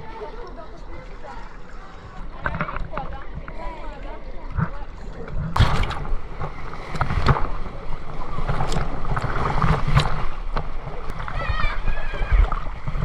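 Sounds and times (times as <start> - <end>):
water rushing and splashing: 0.0 - 13.0
sharp water splashes: 5.5 - 13.0.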